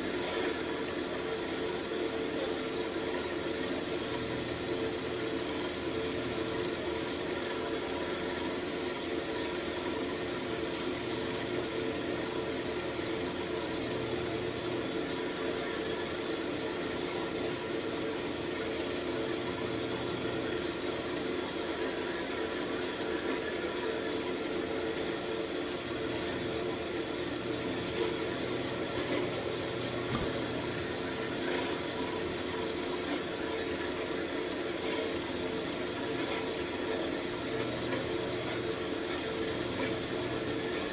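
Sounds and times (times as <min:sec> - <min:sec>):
lathe motor humming: 0:25.9 - 0:34.1.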